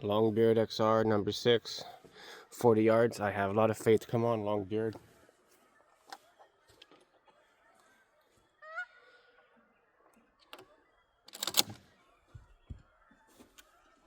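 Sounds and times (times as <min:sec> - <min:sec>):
bird-like call: 0:05.0 - 0:14.0.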